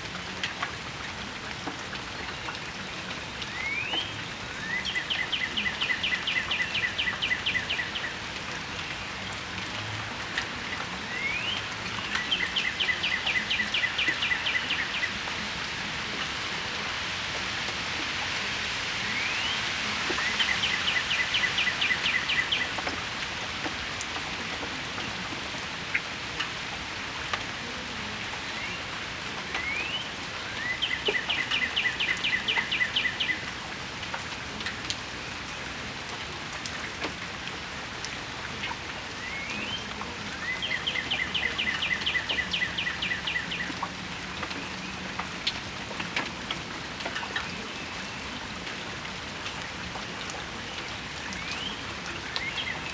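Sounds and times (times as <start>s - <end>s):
rain falling and dripping: 0.0s - 52.9s
songbird singing a trill: 40.4s - 43.8s.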